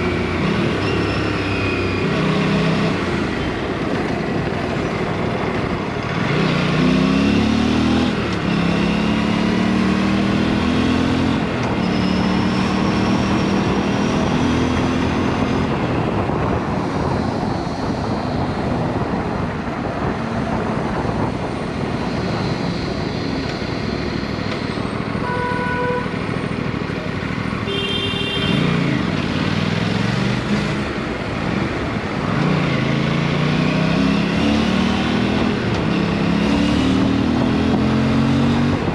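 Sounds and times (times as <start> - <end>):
motorcycle engine revving: 6.0 - 15.9, 27.2 - 38.9
wind noise on microphone: 12.9 - 25.3, 34.1 - 38.9
vehicle horn: 25.2 - 26.2, 27.7 - 28.8.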